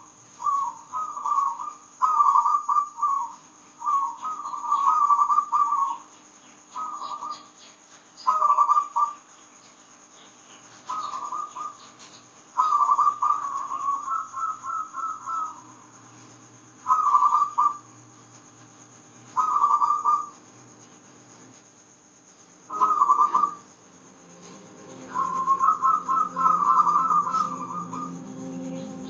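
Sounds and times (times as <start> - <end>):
dove cooing: 0.4 - 6.0, 6.8 - 7.5, 8.2 - 9.2, 10.9 - 11.9, 12.6 - 15.7, 16.9 - 17.9, 19.4 - 20.4, 22.7 - 23.7, 24.4 - 29.0.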